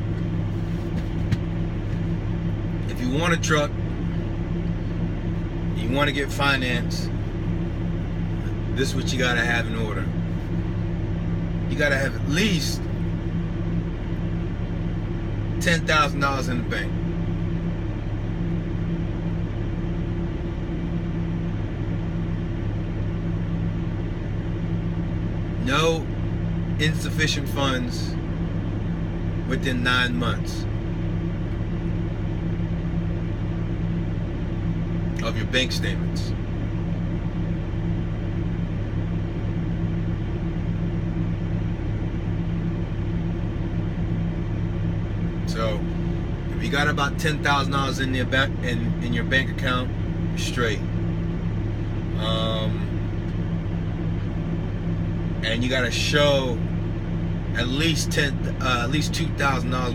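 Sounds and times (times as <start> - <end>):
vehicle engine idling: 0.0 - 59.9.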